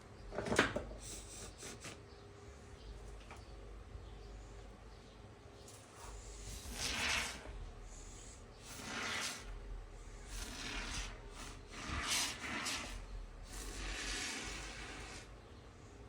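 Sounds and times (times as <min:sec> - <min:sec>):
spray foam hissing bursts: 0:06.0 - 0:09.6, 0:10.2 - 0:15.3.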